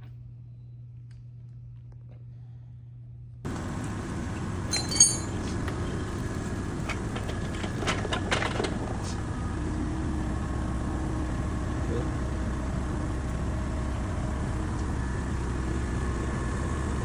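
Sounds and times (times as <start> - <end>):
low background rumble: 0.2 - 17.0
metal clinking: 3.5 - 5.8.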